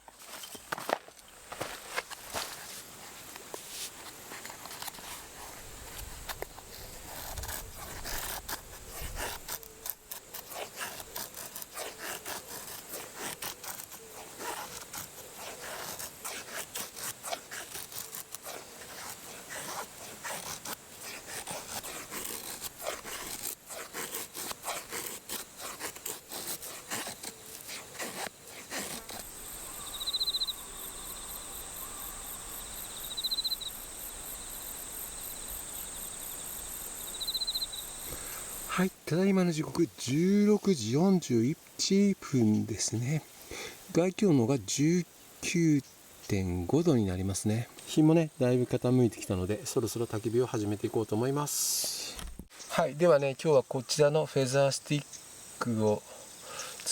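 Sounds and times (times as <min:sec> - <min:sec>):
insect chirps: 0:00.0 - 0:56.9
insects droning: 0:00.0 - 0:56.9
knife scraping wood: 0:03.5 - 0:38.7.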